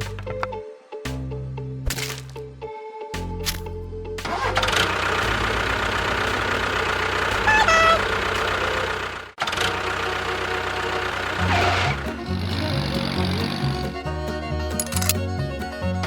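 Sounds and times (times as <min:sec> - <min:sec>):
small engine running: 0:04.3 - 0:15.3.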